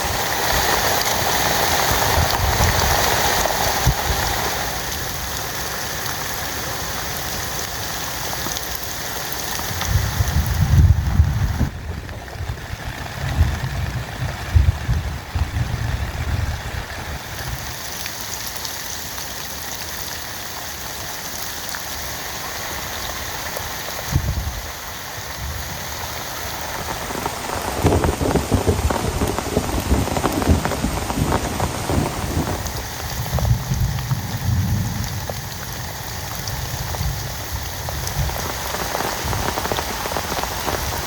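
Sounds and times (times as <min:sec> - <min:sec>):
heavy rain falling: 0:00.0 - 0:41.0
low rumbles: 0:09.8 - 0:17.6, 0:26.8 - 0:38.5.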